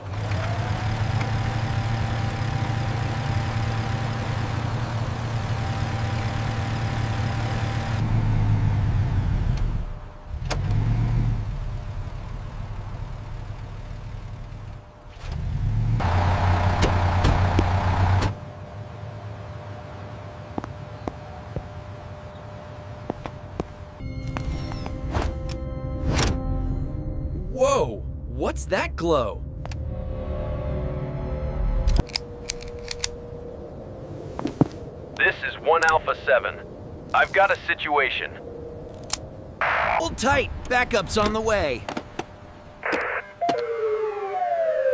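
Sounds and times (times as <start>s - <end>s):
car engine humming: 0.0s - 27.0s.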